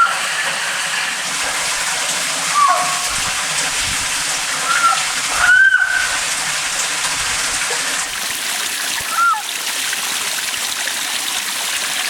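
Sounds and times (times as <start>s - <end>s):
stream rushing: 0.0s - 12.0s
frog whistling calls: 2.5s - 3.4s, 4.6s - 6.2s, 9.1s - 9.4s.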